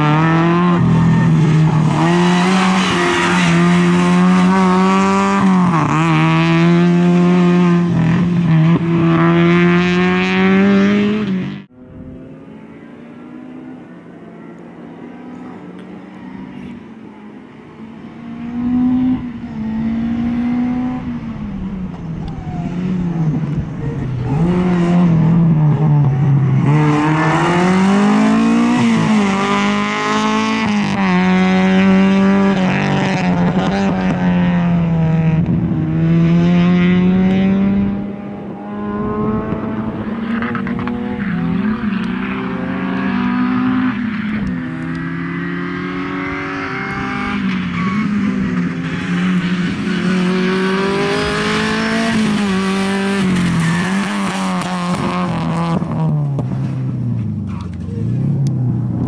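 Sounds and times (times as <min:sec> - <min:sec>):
race car engine revving: 0:00.0 - 0:14.0, 0:18.1 - 0:59.0.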